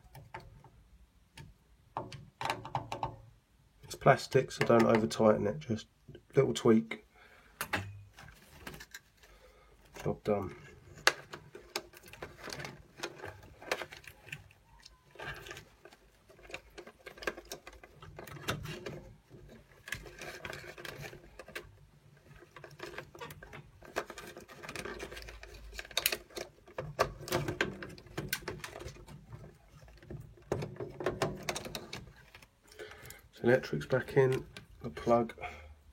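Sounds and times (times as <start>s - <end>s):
clicks and rattles of tools: 7.6s - 33.3s.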